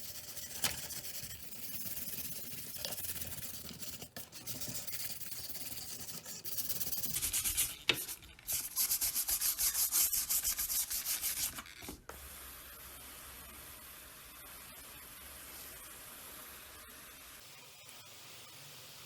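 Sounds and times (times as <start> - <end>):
hand sanding strokes: 4.6 - 11.7.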